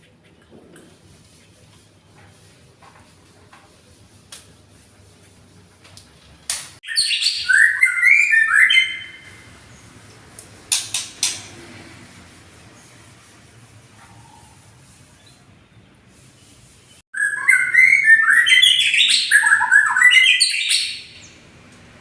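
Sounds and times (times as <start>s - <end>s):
songbird singing warbled phrases: 6.8s - 9.4s, 17.2s - 21.4s.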